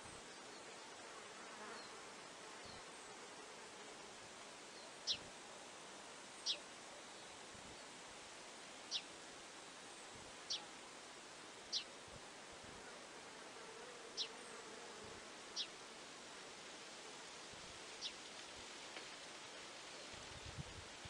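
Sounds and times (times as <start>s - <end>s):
faint hiss: 0.0s - 21.0s
faint insect buzz: 0.0s - 21.0s
small bird chirping: 5.0s - 5.2s, 8.9s - 9.1s.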